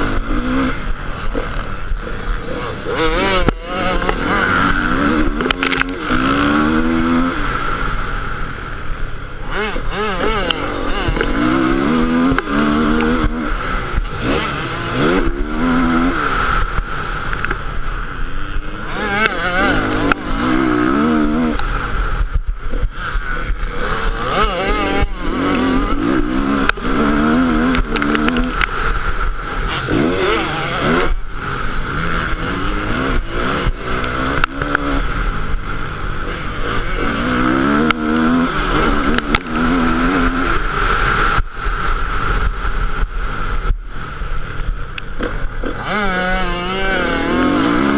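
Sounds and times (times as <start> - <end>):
motorcycle engine revving: 0.0 - 47.9
knocks and buffeting: 18.6 - 40.7.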